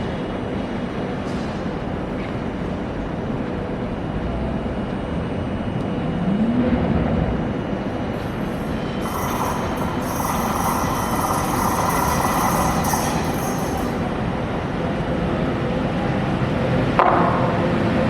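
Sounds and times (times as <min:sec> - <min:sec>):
wheel squeal: 0:08.1 - 0:15.2.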